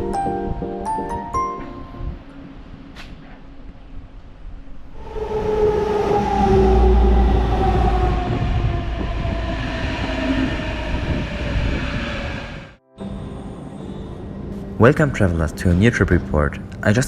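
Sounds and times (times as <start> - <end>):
electric train rumbling: 2.1 - 16.9
train motor whine falling in pitch: 5.0 - 12.7.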